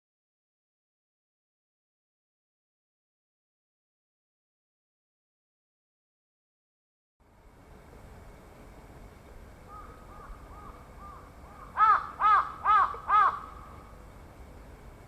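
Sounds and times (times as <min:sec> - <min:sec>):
crow cawing: 0:09.7 - 0:13.8.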